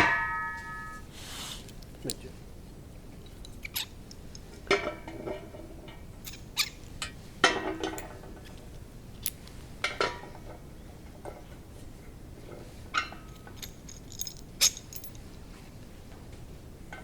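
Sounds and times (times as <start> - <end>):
metal parts clinking and knocking: 6.2 - 8.4, 13.0 - 15.3.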